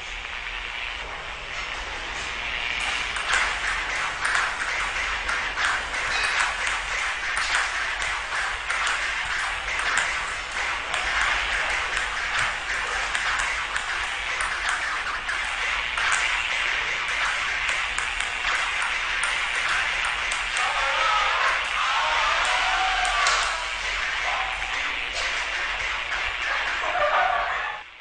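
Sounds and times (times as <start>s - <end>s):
steady hiss: 0.0s - 28.0s
table tennis ball clicks: 2.8s - 20.7s.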